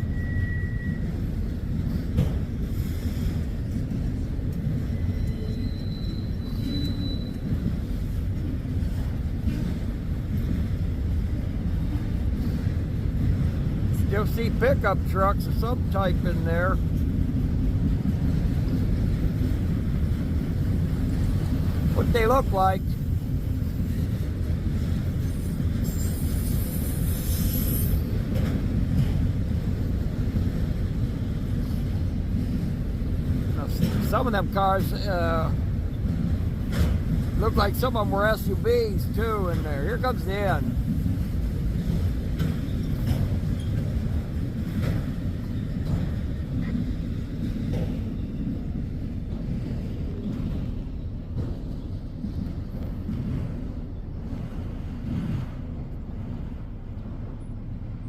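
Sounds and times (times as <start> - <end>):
faint high wheel squeal: 0.0 - 1.3, 4.9 - 7.7, 25.2 - 28.1
train rumbling on track: 0.0 - 58.0.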